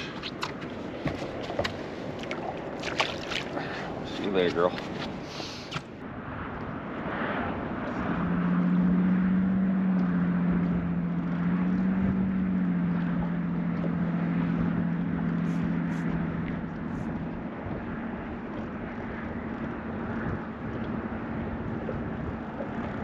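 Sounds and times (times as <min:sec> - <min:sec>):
wind noise: 0:14.4 - 0:23.0.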